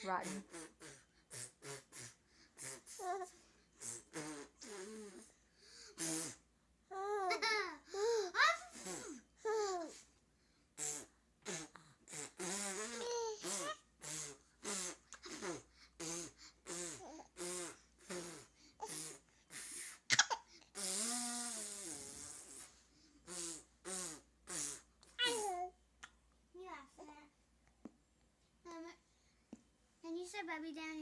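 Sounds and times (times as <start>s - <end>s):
woman making silly vocal noises: 0.0s - 3.1s.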